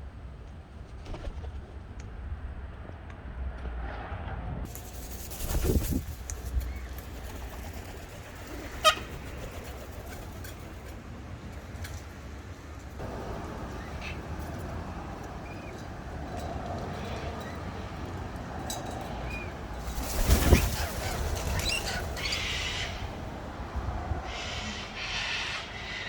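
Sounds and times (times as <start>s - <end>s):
wind rumble on microphone: 0.9s - 8.4s, 13.0s - 24.8s
wild birds calling: 6.4s - 10.7s, 19.2s - 26.0s.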